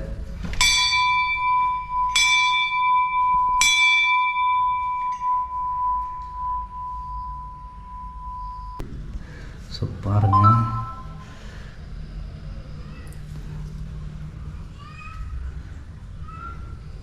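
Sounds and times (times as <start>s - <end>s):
temple bell ringing: 0.6s - 8.8s, 10.3s - 11.2s.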